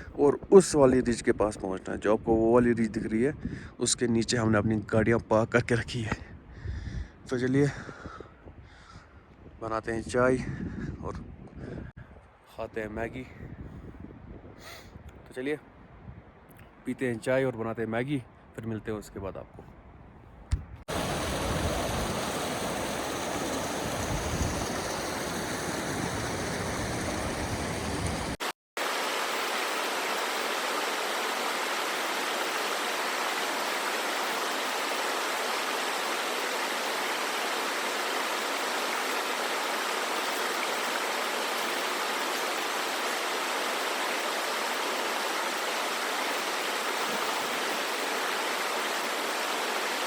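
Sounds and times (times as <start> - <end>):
mountain stream rushing: 20.9 - 50.0.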